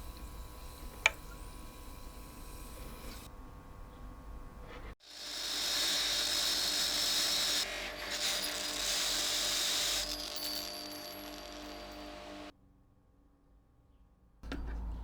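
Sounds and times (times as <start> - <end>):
power tool on metal: 5.0 - 12.5.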